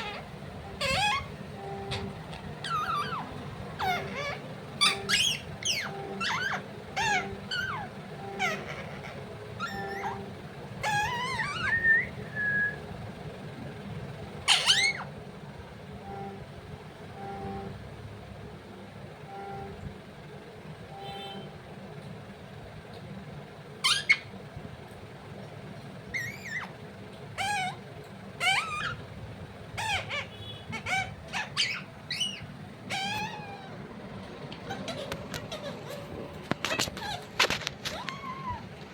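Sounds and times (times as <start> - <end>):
parrot chirping and squawking: 0.0 - 12.5, 14.4 - 15.2, 23.8 - 24.4, 26.0 - 38.8.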